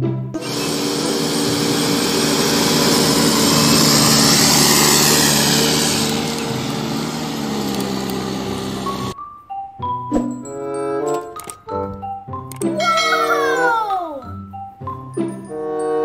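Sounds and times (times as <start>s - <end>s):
diesel engine under load: 0.4s - 9.2s.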